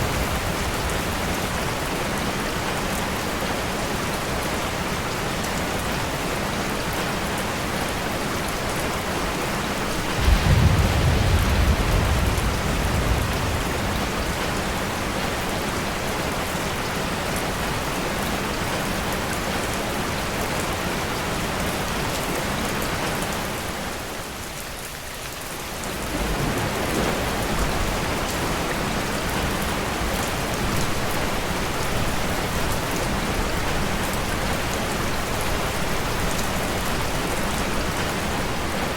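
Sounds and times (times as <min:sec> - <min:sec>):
deep rumble of thunder: 0:00.0 - 0:02.1, 0:09.9 - 0:16.2, 0:25.9 - 0:32.5
steady rain falling: 0:00.0 - 0:38.9.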